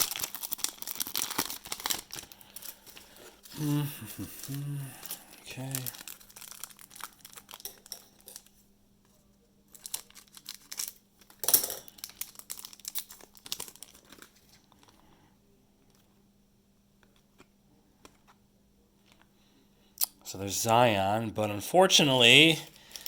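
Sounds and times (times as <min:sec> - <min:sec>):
foil wrapper crinkling and tearing: 0:00.0 - 0:08.6, 0:09.7 - 0:15.0, 0:22.7 - 0:23.0.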